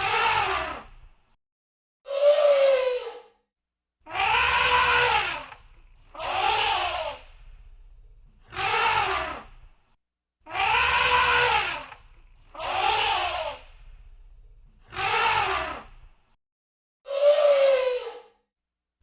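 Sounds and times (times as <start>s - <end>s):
elephant trumpeting: 4.1s - 7.3s, 8.5s - 9.5s, 10.5s - 13.6s, 14.9s - 15.9s.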